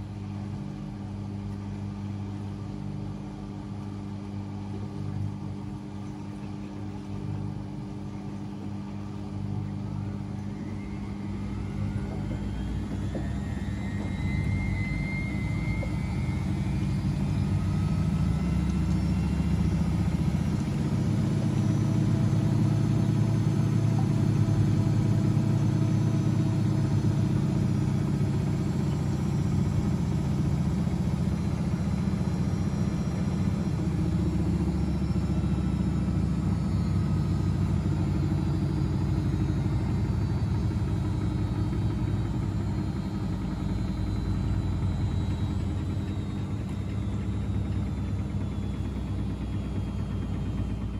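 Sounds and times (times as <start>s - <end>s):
washing machine drum hum: 0.0s - 50.9s
washing machine motor whine: 0.0s - 50.9s.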